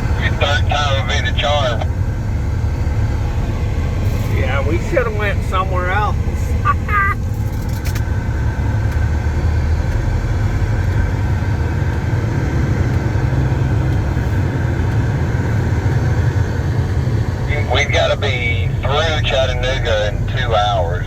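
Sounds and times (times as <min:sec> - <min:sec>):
faint steady whine: 0:00.0 - 0:07.8, 0:14.4 - 0:21.0
truck diesel engine rumble: 0:00.0 - 0:21.0.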